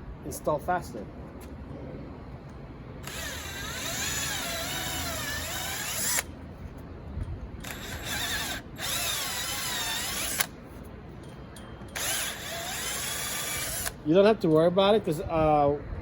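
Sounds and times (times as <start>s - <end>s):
power drill whine: 3.0s - 6.3s, 7.6s - 10.5s, 12.0s - 14.0s.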